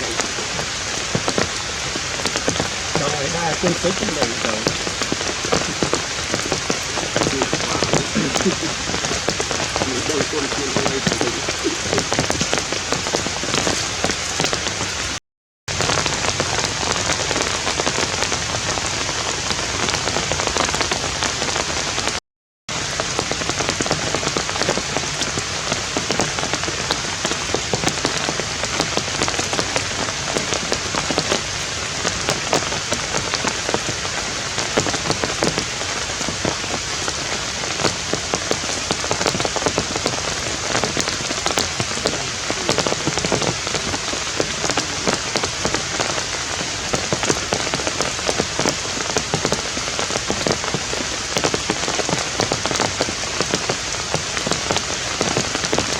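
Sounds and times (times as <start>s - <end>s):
close raindrop hits: 0.0s - 55.9s
steady rain: 0.0s - 55.9s.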